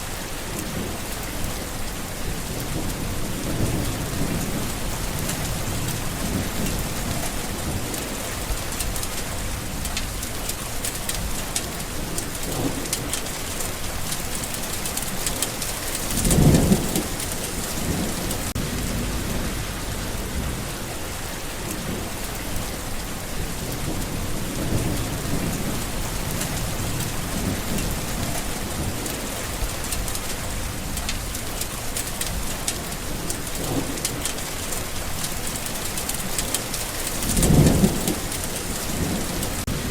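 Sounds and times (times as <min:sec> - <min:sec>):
steady rain falling: 0:00.0 - 0:39.9
low rumble: 0:17.9 - 0:21.2.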